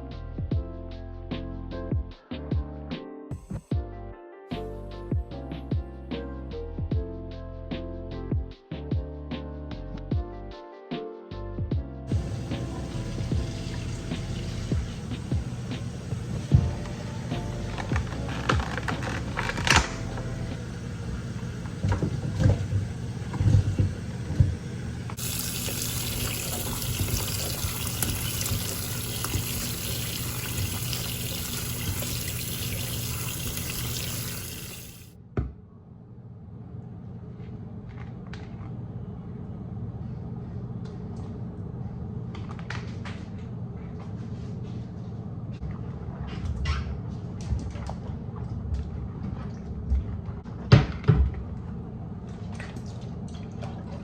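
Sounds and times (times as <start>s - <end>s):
water running from tap: 12.1s - 35.1s.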